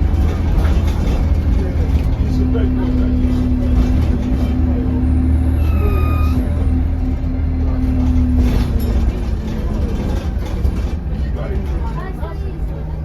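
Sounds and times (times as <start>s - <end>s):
bus engine droning: 0.0s - 13.0s
turbo whistle: 5.5s - 6.4s.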